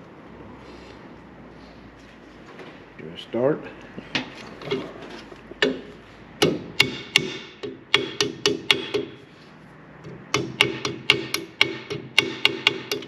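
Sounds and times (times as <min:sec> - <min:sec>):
hammer striking metal: 0:05.6 - 0:09.3, 0:10.3 - 0:13.0.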